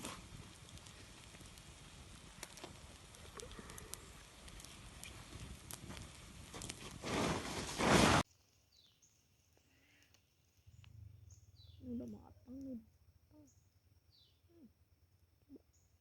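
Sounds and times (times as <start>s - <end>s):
cooking fire crackling: 0.0s - 14.3s.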